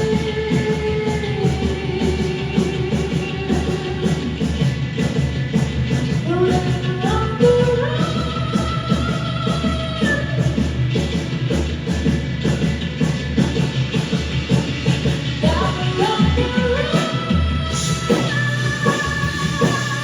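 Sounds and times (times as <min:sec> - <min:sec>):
drum beat: 0:00.0 - 0:20.0
rock band playing: 0:09.6 - 0:20.0.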